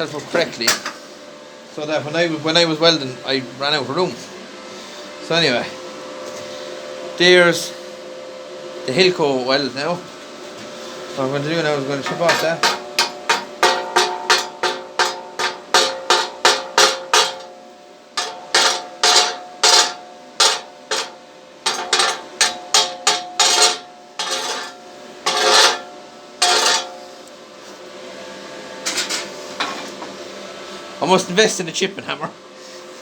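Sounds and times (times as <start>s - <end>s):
metal scraping strokes: 18.2s - 27.2s.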